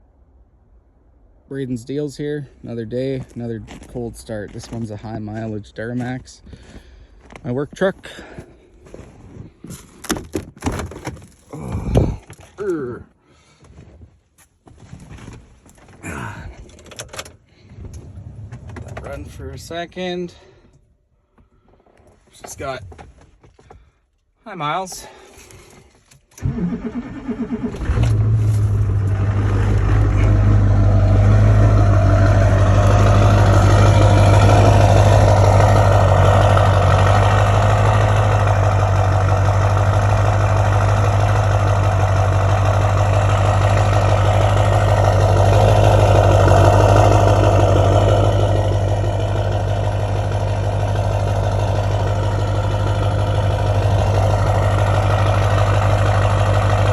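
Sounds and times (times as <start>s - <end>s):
diesel engine idling: 26.4s - 56.9s.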